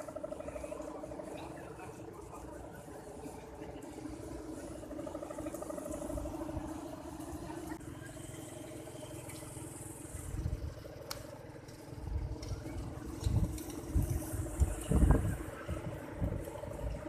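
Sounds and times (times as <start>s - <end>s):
wavering drone of kite hummers: 0.0s - 17.0s
wind buffeting microphone: 10.2s - 10.8s, 12.0s - 17.0s.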